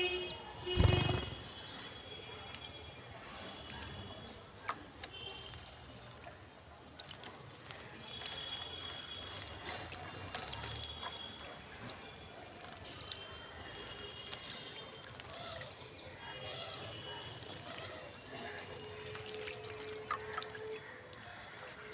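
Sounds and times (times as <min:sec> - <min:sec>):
birds splashing in water: 0:04.7 - 0:06.3, 0:06.9 - 0:21.9.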